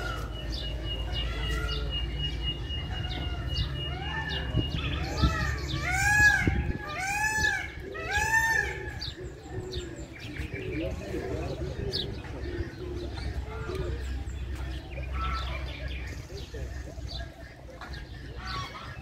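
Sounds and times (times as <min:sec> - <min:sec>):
chorus of bird calls: 0:00.0 - 0:19.0.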